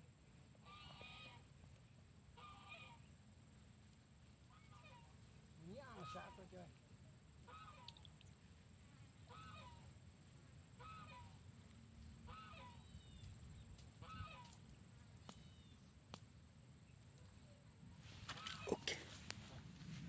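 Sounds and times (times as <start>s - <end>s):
faint honking animal calls: 0.6s - 1.5s, 2.4s - 3.1s, 4.5s - 6.7s, 7.4s - 8.1s, 9.2s - 9.9s, 10.8s - 11.4s, 12.2s - 13.1s, 14.0s - 14.6s, 18.3s - 19.3s.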